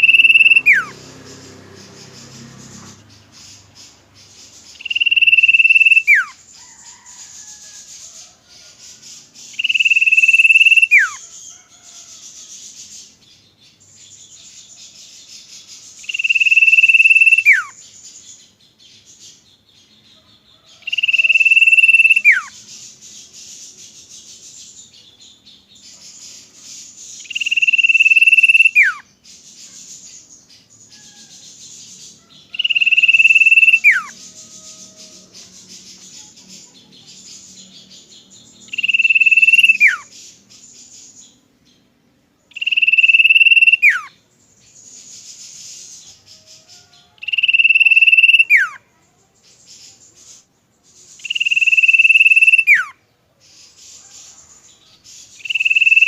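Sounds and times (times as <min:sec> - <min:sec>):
bird whistled call: 0:00.0 - 0:01.0, 0:04.7 - 0:07.6, 0:09.5 - 0:11.2, 0:16.0 - 0:17.8, 0:20.9 - 0:22.6, 0:27.2 - 0:29.0, 0:32.5 - 0:35.3, 0:38.7 - 0:40.1, 0:42.5 - 0:44.2, 0:46.4 - 0:48.8, 0:51.2 - 0:53.0, 0:55.4 - 0:56.0.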